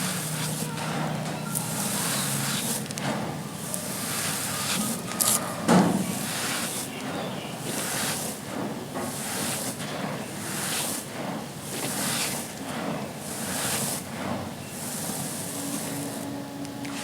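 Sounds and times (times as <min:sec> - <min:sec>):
charcoal being crushed: 0:00.0 - 0:17.0.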